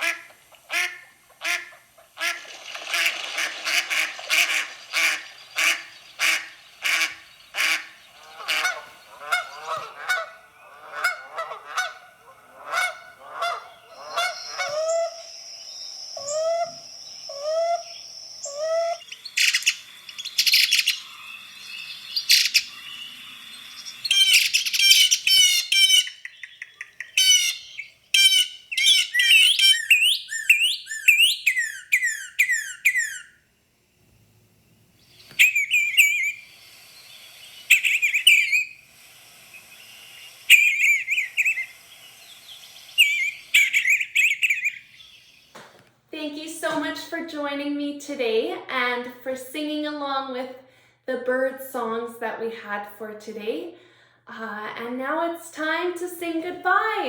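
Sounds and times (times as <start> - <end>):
bird calls: 0.0 - 33.4, 35.0 - 45.8
thin high whistle: 35.0 - 45.2
short rising bird notes: 35.0 - 45.5
quick high chirps: 35.1 - 45.2.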